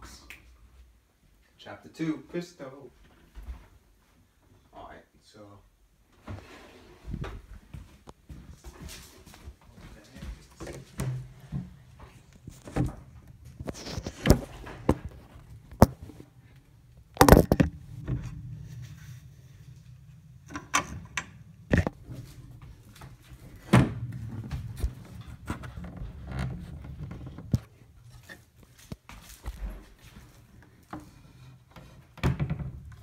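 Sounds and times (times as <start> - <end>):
low steady hum: 10.4 - 31.0
knocks and thumps: 17.0 - 18.5, 20.5 - 27.8.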